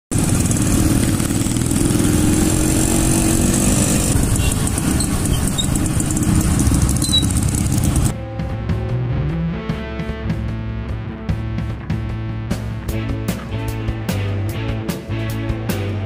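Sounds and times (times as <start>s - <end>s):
motorcycle engines running: 0.1s - 8.2s.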